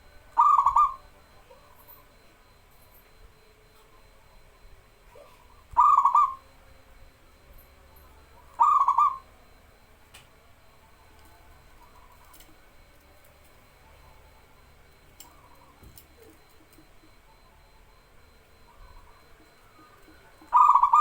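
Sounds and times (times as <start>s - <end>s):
dove cooing: 0.0s - 2.7s, 3.4s - 9.9s, 11.0s - 21.0s.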